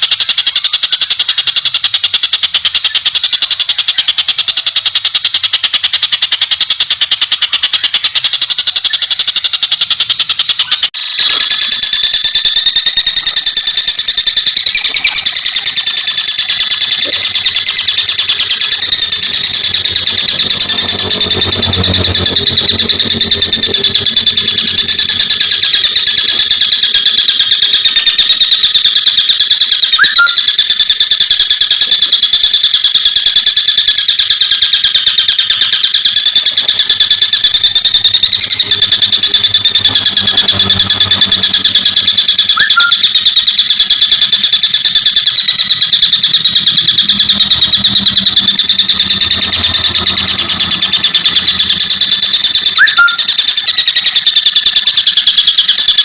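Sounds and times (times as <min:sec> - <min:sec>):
kingfisher rattling chatter: 0:00.0 - 0:56.0
short rising chirps: 0:10.6 - 0:27.0, 0:35.0 - 0:54.7.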